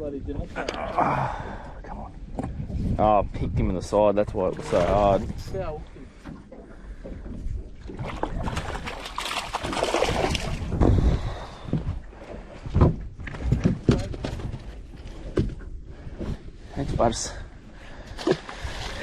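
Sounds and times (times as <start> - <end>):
rushing wind and water: 0.0 - 19.0
dull thumps on boat: 12.6 - 16.4.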